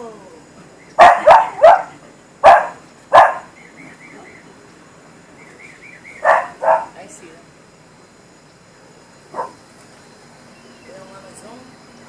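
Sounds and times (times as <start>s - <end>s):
dog barking: 1.0s - 3.5s, 6.2s - 7.0s, 9.3s - 9.6s.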